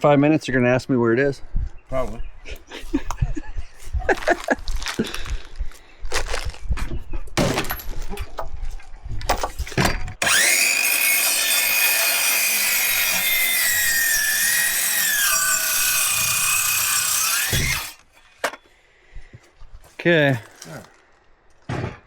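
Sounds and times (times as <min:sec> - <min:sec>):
circular saw cutting wood: 0:10.2 - 0:18.1.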